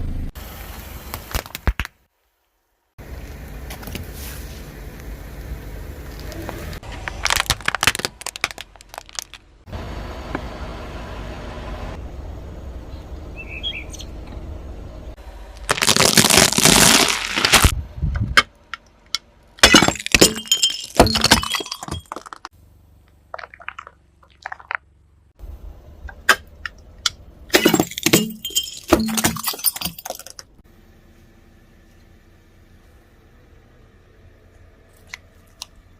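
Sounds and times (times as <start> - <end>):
objects crunching under car tyre: 6.0 - 9.5, 15.5 - 17.8, 19.6 - 22.5
steady low rumble: 17.6 - 19.6, 24.9 - 27.5.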